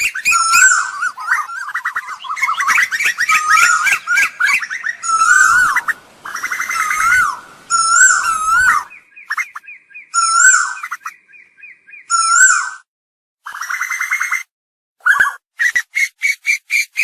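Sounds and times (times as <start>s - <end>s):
bird calling swooping notes: 0.0s - 12.4s.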